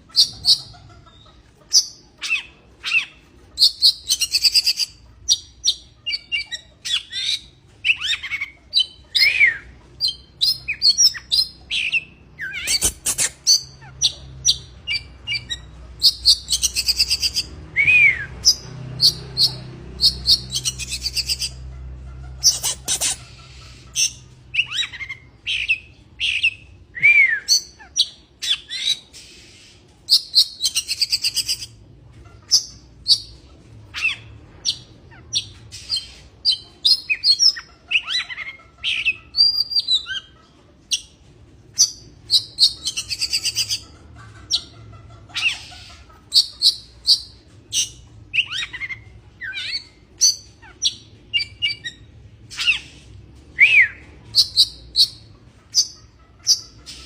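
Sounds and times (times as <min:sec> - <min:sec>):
bird singing whistles and chirps: 0:24.6 - 0:31.6.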